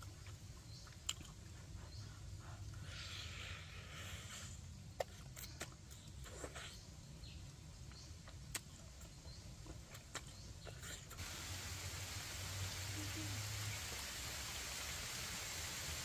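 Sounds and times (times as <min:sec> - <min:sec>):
chewing with wet mouth clicks: 0:00.0 - 0:02.6, 0:05.0 - 0:06.8, 0:07.8 - 0:11.2
steady hiss: 0:11.0 - 0:16.0.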